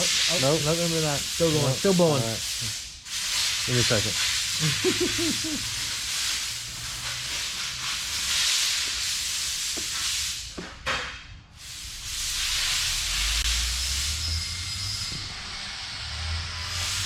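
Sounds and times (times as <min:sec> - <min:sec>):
compressed air hissing: 0:00.0 - 0:10.6, 0:11.5 - 0:14.4.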